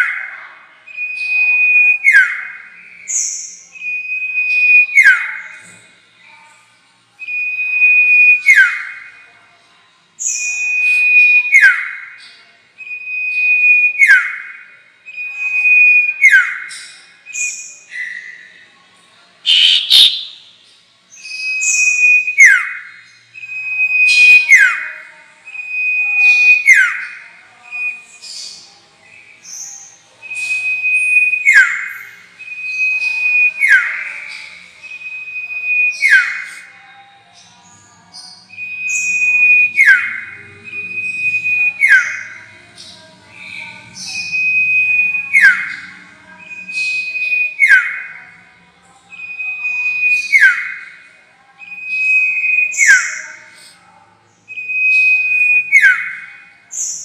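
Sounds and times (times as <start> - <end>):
songbird whistle call: 19.5 - 20.4
harsh bird note: 19.5 - 20.5.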